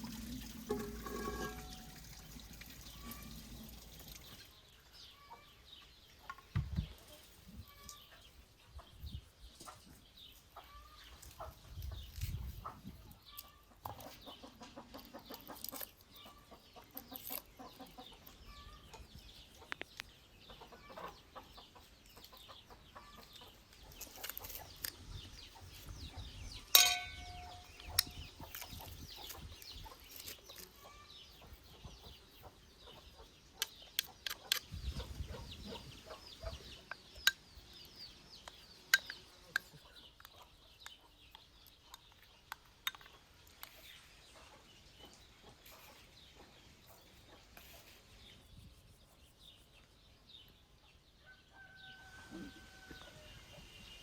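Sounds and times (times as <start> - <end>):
small birds chirping: 1.6 - 54.0
chickens clucking: 6.1 - 37.4, 38.0 - 48.2
sharp sound with ringing tone: 26.7 - 27.7.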